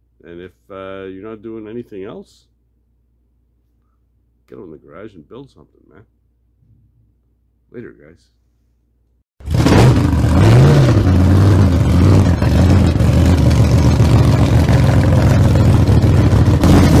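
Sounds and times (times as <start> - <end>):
loud engine running and revving: 9.4 - 17.0.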